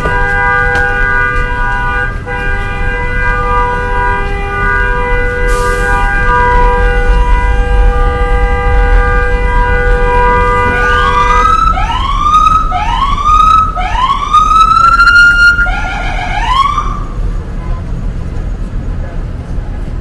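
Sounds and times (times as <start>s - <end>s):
multi-tone horn blast: 0.0s - 17.2s
heavy traffic rumble: 0.0s - 20.0s
siren rising sweeps: 5.7s - 17.3s.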